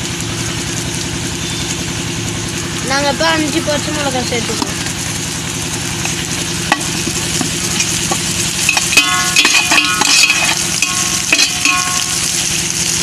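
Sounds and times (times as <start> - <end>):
onions sizzling in oil: 0.0 - 13.0
steady low hum: 0.0 - 13.0
spatula clinking on pot: 6.7 - 12.2.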